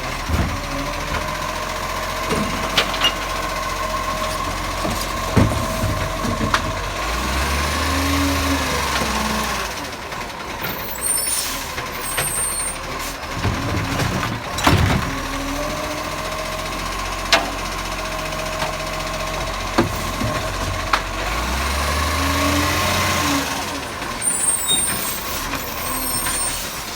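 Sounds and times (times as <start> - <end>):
garbage truck engine running: 0.0 - 26.9
hydraulics whining: 0.0 - 26.9.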